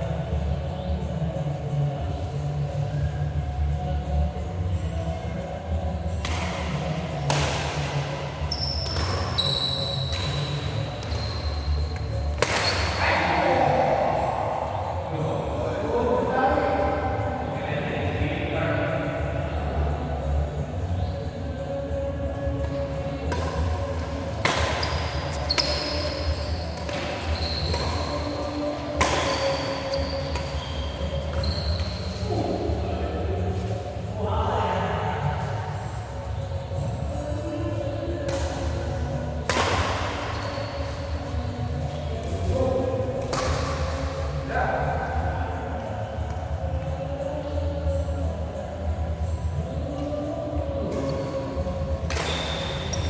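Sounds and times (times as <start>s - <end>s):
rackets striking shuttlecock: 6.2s - 13.0s, 23.2s - 32.0s, 38.2s - 41.4s, 43.2s - 44.4s, 50.9s - 53.0s
shoe squeaks on court: 7.8s - 13.0s, 24.3s - 32.5s, 52.1s - 53.0s
low rumble of large hall: 10.4s - 53.0s
sharp ball hits: 12.3s - 12.9s.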